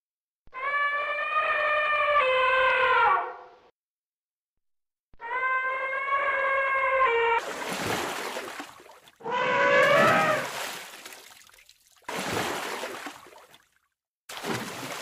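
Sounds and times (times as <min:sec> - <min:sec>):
water splashing: 0:07.4 - 0:15.0
elephant trumpeting: 0:09.2 - 0:10.5.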